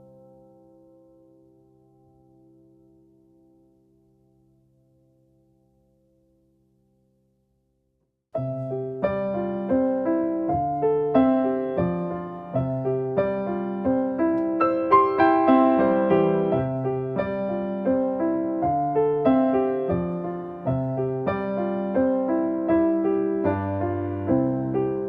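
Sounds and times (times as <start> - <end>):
gentle piano piece: 0.0 - 7.0, 8.4 - 25.0.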